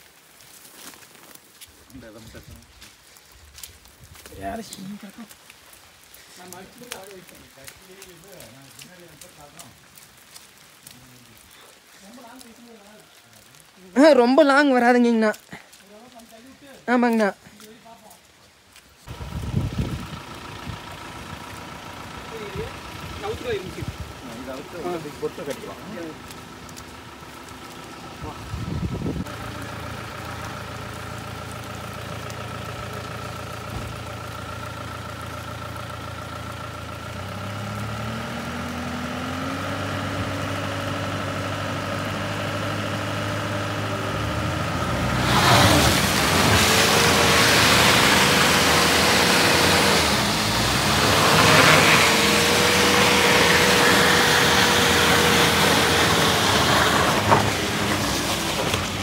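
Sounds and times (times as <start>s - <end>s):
diesel engine revving: 19.1s - 59.0s.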